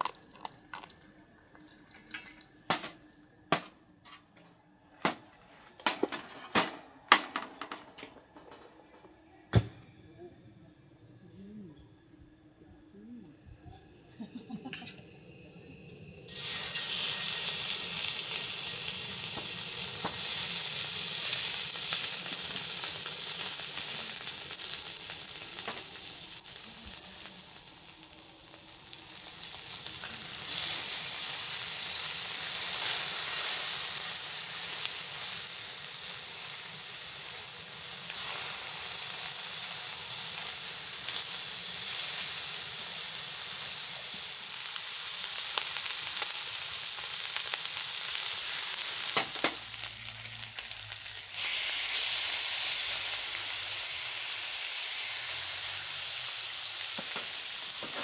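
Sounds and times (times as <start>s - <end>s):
food sizzling in a pan: 13.3s - 58.0s.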